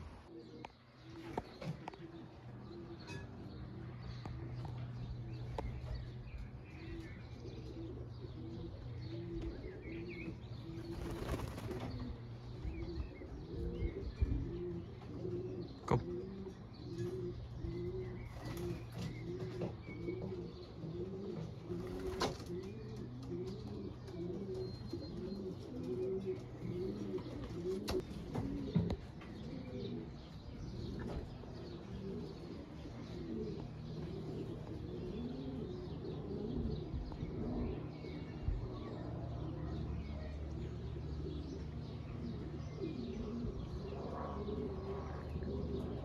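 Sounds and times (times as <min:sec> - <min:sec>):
pigeons cooing: 0:00.0 - 0:46.0.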